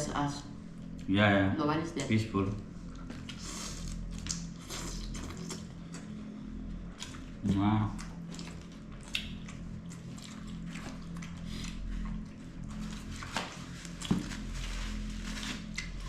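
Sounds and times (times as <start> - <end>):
steady low hum: 0.0 - 16.0
chewing: 6.9 - 14.1.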